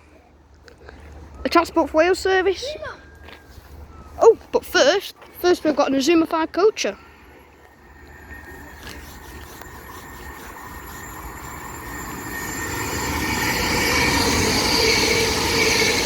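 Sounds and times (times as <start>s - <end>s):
train rumble: 4.5s - 16.0s
steady whine: 6.7s - 16.0s.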